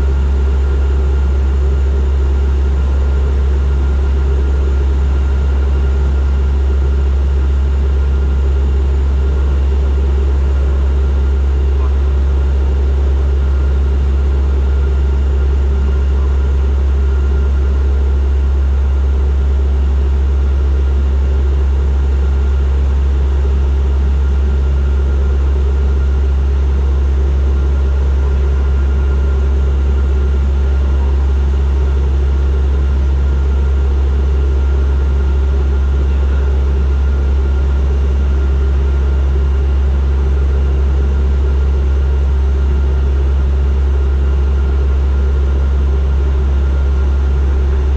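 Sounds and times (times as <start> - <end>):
turboprop engines droning: 0.0 - 47.9.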